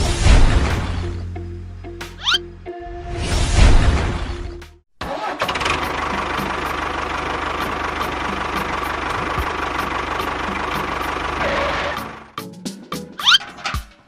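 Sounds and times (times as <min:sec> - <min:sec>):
small engine running: 0:05.1 - 0:12.3.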